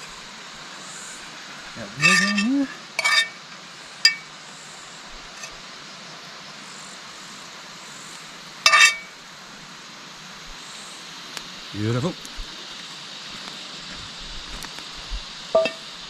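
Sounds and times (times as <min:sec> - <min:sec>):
steady hiss: 0:00.0 - 0:16.0
metal utensils clinking on frying pan: 0:02.0 - 0:03.4, 0:08.6 - 0:09.1, 0:15.6 - 0:15.8.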